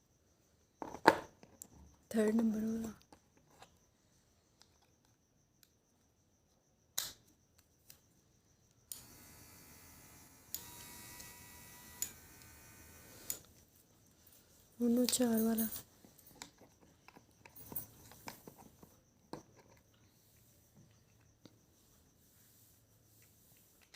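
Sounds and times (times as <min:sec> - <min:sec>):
small electric motor running: 0:08.9 - 0:13.5.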